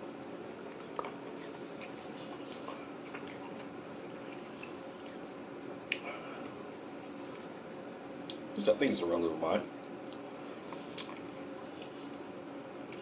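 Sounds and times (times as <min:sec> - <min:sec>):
low room hum: 0:00.0 - 0:13.0
chewing and mouth clicks: 0:00.3 - 0:07.5, 0:09.8 - 0:13.0.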